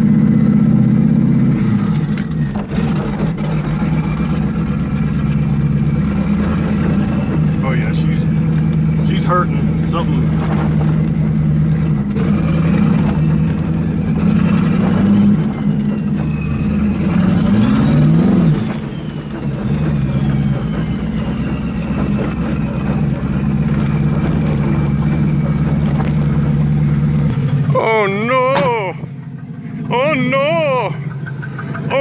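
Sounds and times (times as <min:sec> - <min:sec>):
car engine revving under load: 0:00.0 - 0:32.0
faint high turbo whistle: 0:15.2 - 0:23.0
man speaking: 0:27.7 - 0:29.1, 0:29.8 - 0:31.1.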